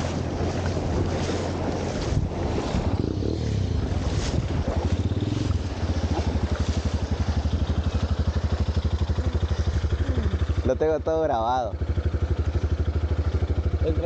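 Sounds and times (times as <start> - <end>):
river flowing: 0.0 - 10.8
wind: 0.0 - 14.0
motorcycle engine idling: 2.8 - 14.0.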